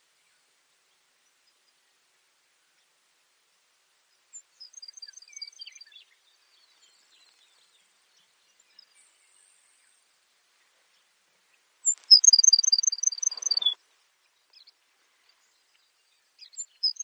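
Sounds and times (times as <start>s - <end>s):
faint steady hiss: 0.0s - 17.0s
sparrow singing: 11.8s - 13.8s, 16.4s - 17.0s.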